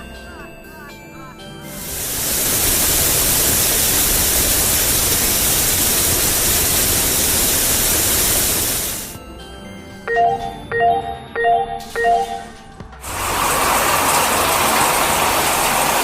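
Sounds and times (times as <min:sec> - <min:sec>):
loud steady hiss: 0:01.8 - 0:09.2
short two-note beeps: 0:10.1 - 0:12.6.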